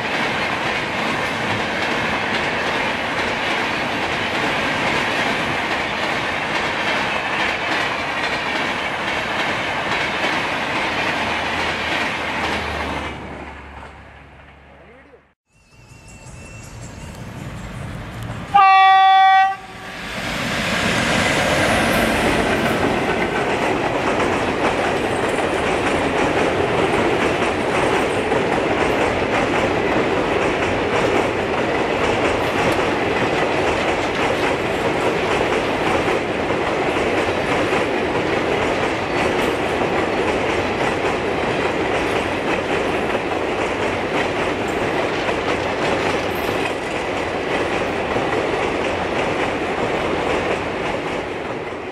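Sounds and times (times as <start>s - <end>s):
wheels clickety-clack: 0.0s - 13.2s, 20.4s - 51.9s
train passing at speed: 0.0s - 51.9s
diesel locomotive horn: 18.5s - 20.0s.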